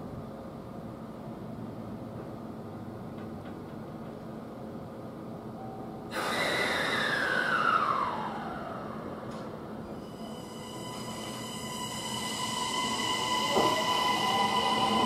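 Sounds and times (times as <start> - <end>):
electric train hum: 0.0 - 15.0
train rushing with falling whine: 3.4 - 15.0.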